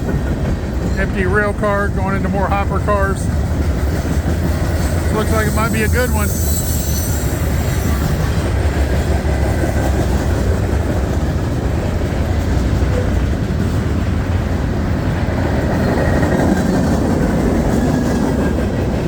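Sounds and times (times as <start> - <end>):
freight train wheels on rail: 0.0 - 19.0.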